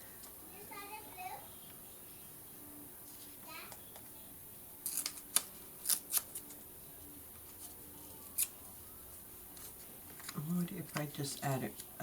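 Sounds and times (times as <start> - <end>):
scissors cutting paper: 4.8 - 6.6, 7.5 - 8.6.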